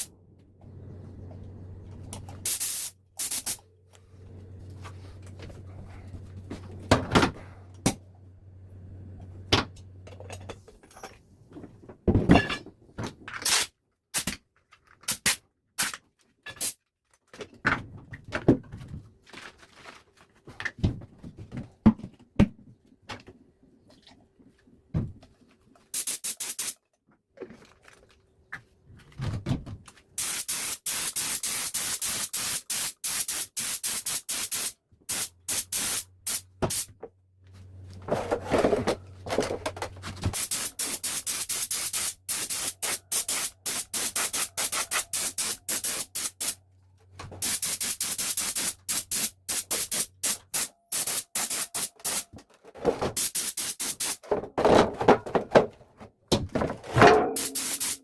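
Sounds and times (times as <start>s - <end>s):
low steady hum: 0.1s - 2.5s, 3.1s - 12.8s
short burst of hiss: 2.5s - 3.6s, 57.4s - 58.0s
metal parts and tools clattering: 10.0s - 11.2s, 12.1s - 14.3s, 56.5s - 58.0s.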